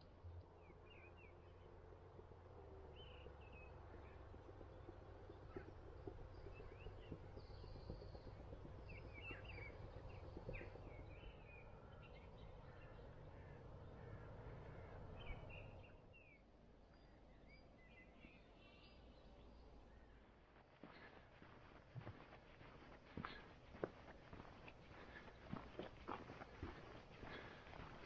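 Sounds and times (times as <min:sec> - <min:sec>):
low steady rumble: 0:00.0 - 0:20.6
faint birdsong: 0:00.0 - 0:28.0.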